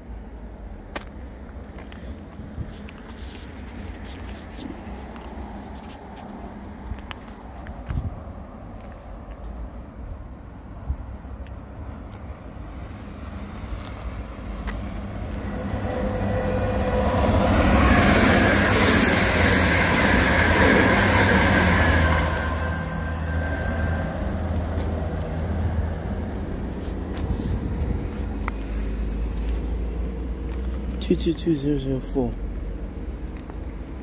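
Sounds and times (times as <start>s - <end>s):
passenger train passing: 9.6s - 34.0s
train whining tones: 12.8s - 30.4s.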